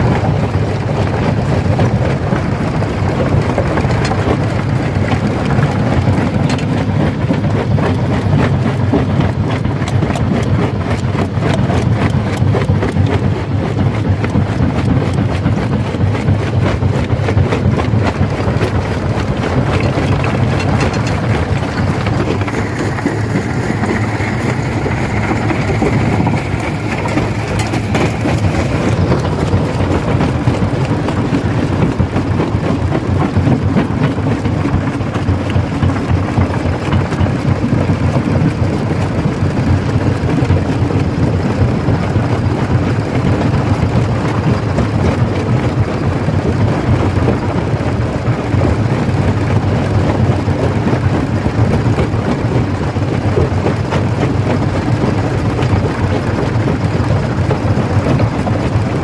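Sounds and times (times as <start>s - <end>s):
stone crusher engine drone: 0.1s - 13.3s, 13.9s - 47.8s
rock crackling and knocking: 17.0s - 38.7s.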